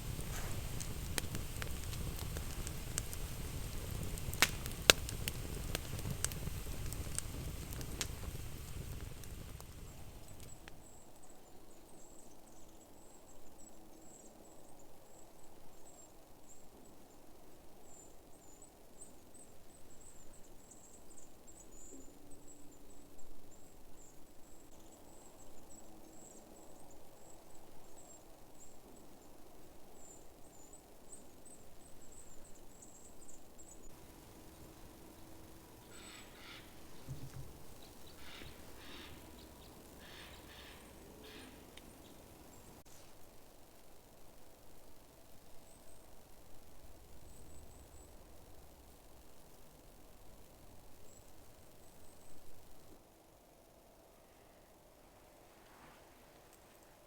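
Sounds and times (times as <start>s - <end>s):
faint low hum: 0.0s - 57.0s
harsh lower bird calls: 33.9s - 42.8s
bird high thin chirps: 35.7s - 42.8s.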